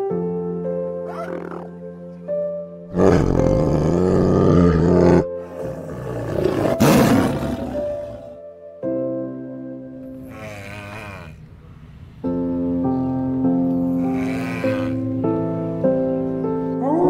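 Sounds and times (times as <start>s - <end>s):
soft piano music: 0.0s - 17.0s
tiger roaring: 1.1s - 1.8s, 2.9s - 8.4s, 10.1s - 11.7s, 13.9s - 15.1s.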